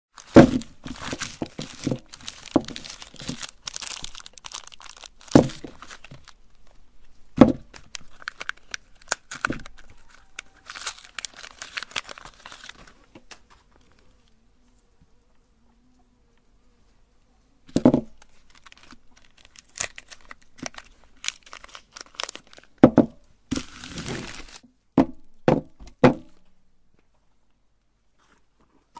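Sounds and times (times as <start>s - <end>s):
meat grinder crunching soap: 0.2s - 6.4s, 7.6s - 14.0s, 17.8s - 22.8s, 23.5s - 24.6s.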